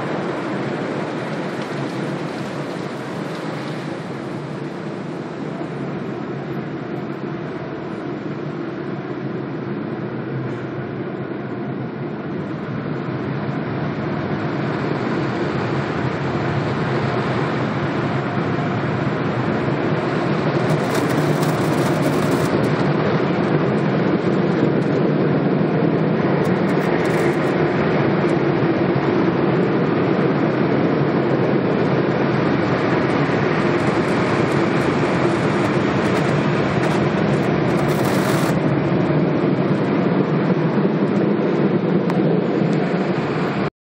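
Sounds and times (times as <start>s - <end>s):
car wash machinery rushing: 0.0s - 6.2s, 31.1s - 40.1s.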